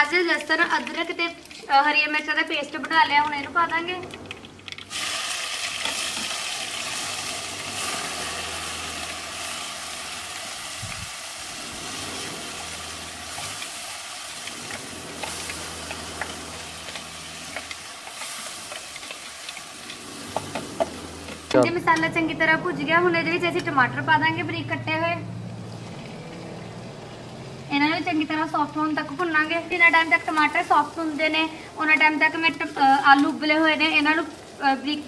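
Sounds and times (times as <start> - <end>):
paste sizzling in hot oil: 4.5 - 21.5.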